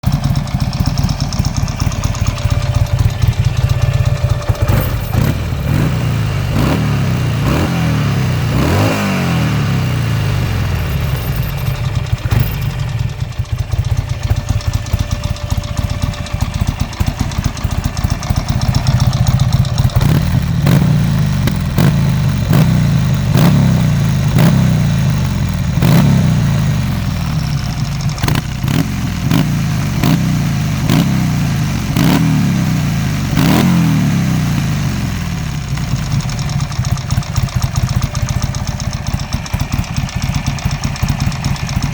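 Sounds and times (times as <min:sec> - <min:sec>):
motorcycle engine idling: 0:00.0 - 0:41.9
motorcycle throttle blips: 0:00.2 - 0:30.3.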